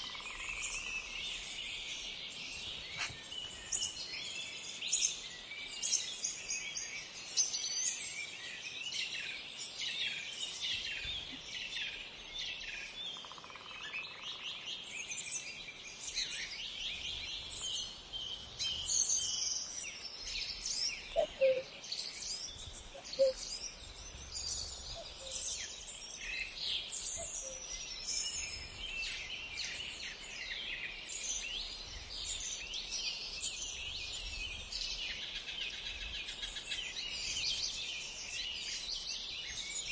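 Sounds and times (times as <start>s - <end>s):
small birds chirping: 16.4s - 39.9s.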